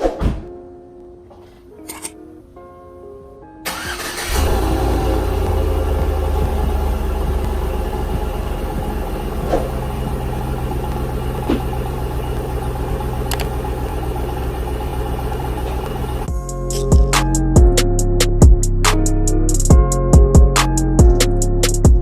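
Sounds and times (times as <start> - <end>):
car engine idling: 3.7 - 17.6.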